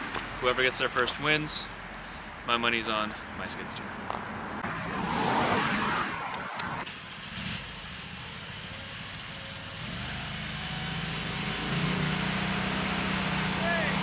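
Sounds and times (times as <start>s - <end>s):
loud rushing noise: 4.6s - 7.0s.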